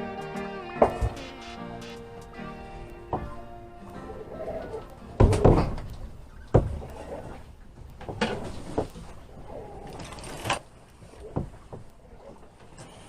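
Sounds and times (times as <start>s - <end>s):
faint steady hiss: 0.0s - 13.0s
irregular knocks and thumps: 5.1s - 9.2s, 11.2s - 11.9s.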